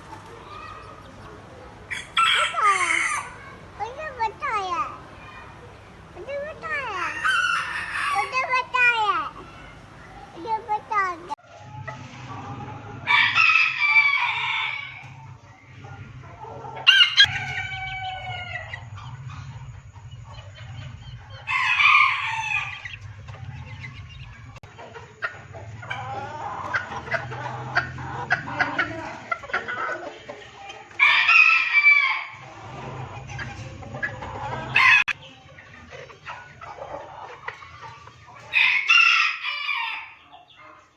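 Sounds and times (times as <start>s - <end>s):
hens clucking: 0.0s - 40.9s
rooster crowing: 12.6s - 15.4s, 16.8s - 19.0s, 21.4s - 23.0s, 31.0s - 32.5s, 34.7s - 35.2s, 38.5s - 40.3s.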